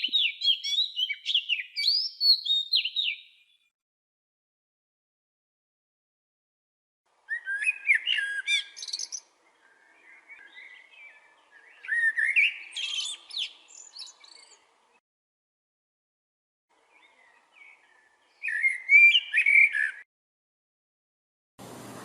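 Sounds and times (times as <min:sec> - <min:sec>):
songbird singing: 0:00.0 - 0:03.7, 0:07.1 - 0:15.0, 0:16.7 - 0:20.1.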